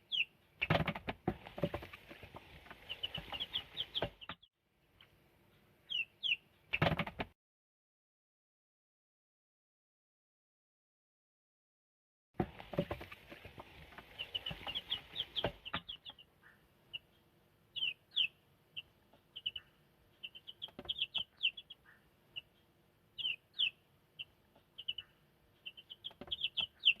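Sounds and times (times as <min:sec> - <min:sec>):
chicks peeping: 0:00.0 - 0:07.2, 0:12.5 - 0:27.0
rustling with knocks: 0:00.6 - 0:04.4, 0:12.4 - 0:16.0.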